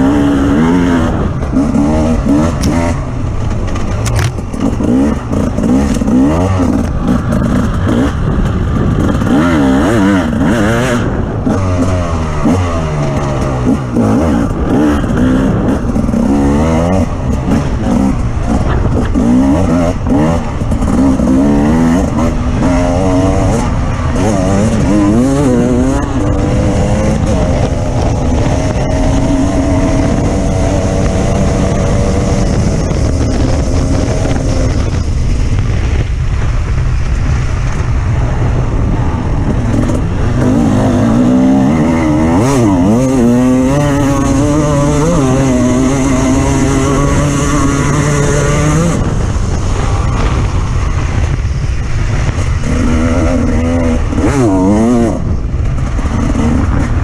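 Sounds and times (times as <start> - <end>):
off-road vehicle engine revving: 0.0 - 35.0, 39.3 - 51.4, 52.1 - 57.0
rough rumbling noise: 0.0 - 57.0.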